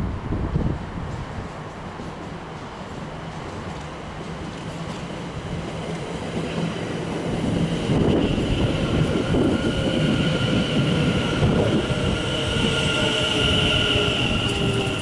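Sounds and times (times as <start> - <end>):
train wheels rumbling on rails: 0.0 - 15.0
high squeal: 7.8 - 15.0.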